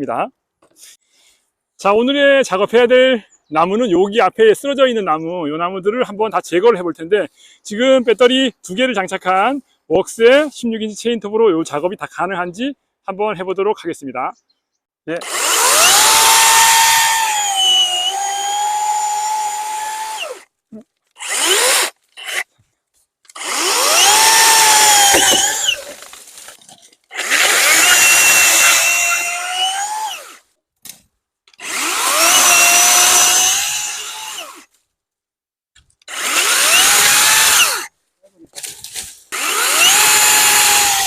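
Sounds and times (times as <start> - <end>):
electric chainsaw cutting logs: 15.2 - 20.5, 21.2 - 22.5, 23.3 - 30.4, 31.5 - 34.7, 36.0 - 37.9, 39.3 - 41.0.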